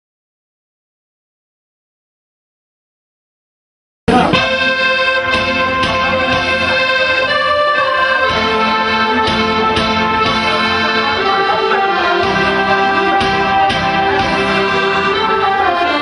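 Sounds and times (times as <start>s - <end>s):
accordion playing a melody: 4.3s - 16.0s.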